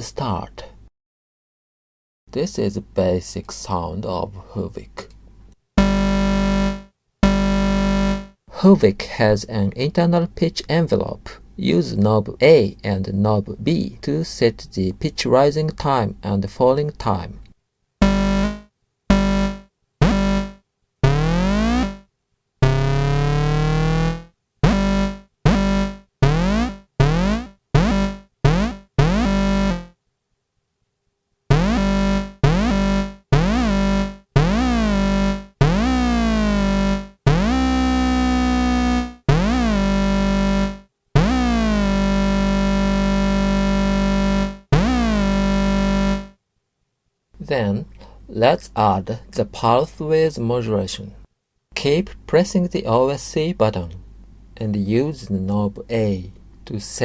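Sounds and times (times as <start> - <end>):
buzzy synthesizer notes swooping: 5.8 - 8.4, 18.0 - 30.0, 31.5 - 46.4.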